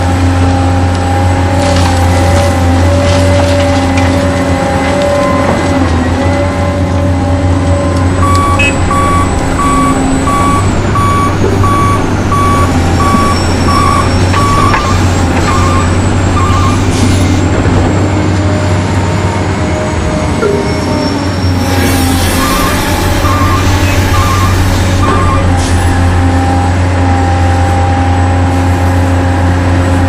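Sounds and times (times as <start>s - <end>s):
toy truck reversing beeps: 8.2s - 16.9s, 22.2s - 25.6s.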